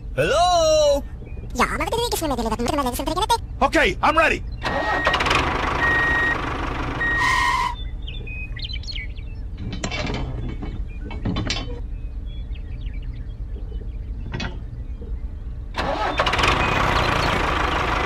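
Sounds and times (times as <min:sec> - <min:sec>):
birds chirping: 0:00.0 - 0:18.0
reversing alarm beeps: 0:05.8 - 0:06.4, 0:07.0 - 0:07.9.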